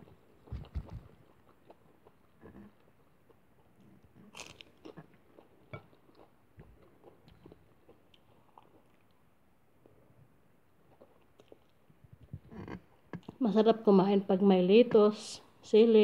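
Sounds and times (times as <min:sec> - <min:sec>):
chewing and crunching lettuce: 0:00.0 - 0:10.1, 0:10.7 - 0:13.4.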